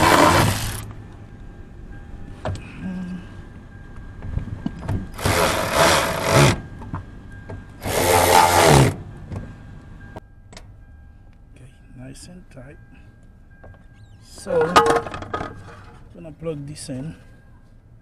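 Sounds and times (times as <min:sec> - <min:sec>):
power tool driving bolts: 0:00.0 - 0:00.9, 0:05.1 - 0:06.6, 0:07.8 - 0:09.0.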